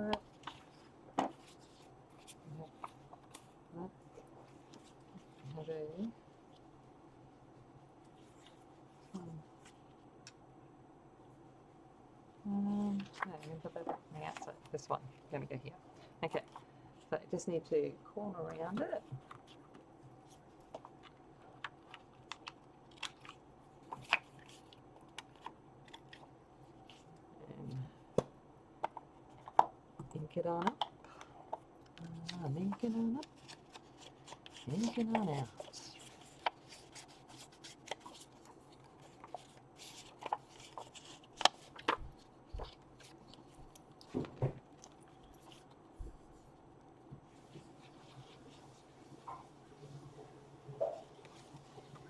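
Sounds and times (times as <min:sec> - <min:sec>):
paper rustling: 0:00.0 - 0:06.0, 0:18.6 - 0:27.1, 0:32.0 - 0:46.5.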